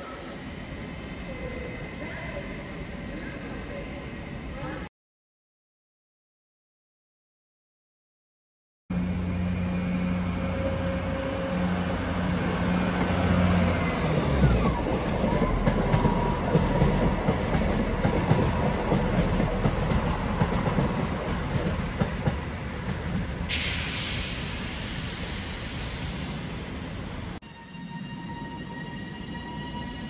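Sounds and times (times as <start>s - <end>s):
passenger train passing: 8.9s - 30.0s.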